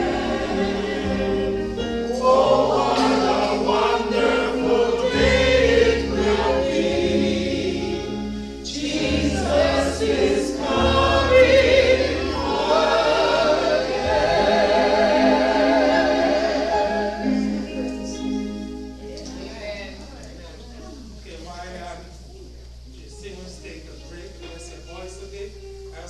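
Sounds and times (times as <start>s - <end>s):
low bass accompaniment: 0.0s - 20.0s
congregation singing a hymn: 0.0s - 20.1s.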